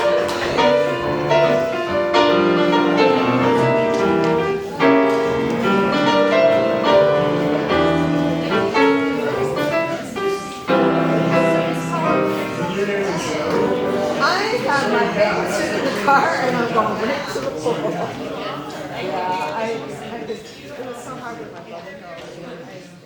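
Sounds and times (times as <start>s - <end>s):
piano chords ringing: 0.0s - 16.8s.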